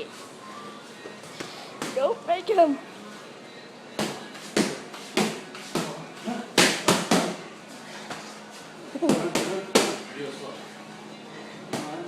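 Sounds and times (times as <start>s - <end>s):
punches smacking: 6.6s - 7.4s.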